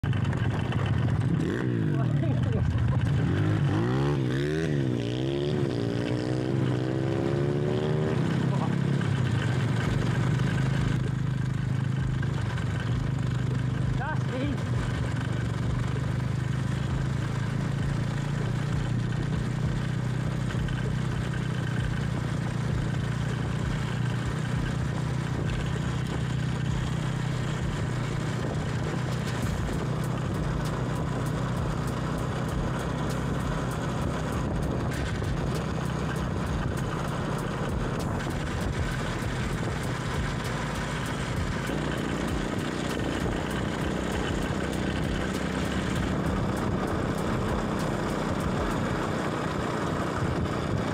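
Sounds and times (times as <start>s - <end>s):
vehicle running with low hum: 0.0s - 50.9s.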